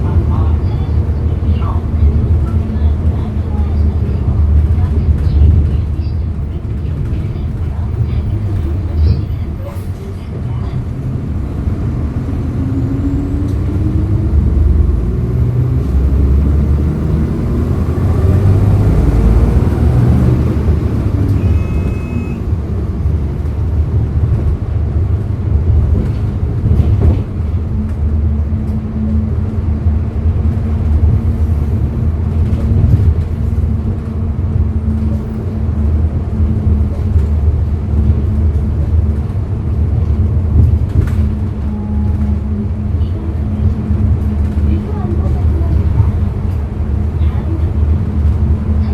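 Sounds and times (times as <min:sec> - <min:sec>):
bus engine pulling away: 0:06.4 - 0:48.9
brief electronic tone: 0:21.4 - 0:22.4.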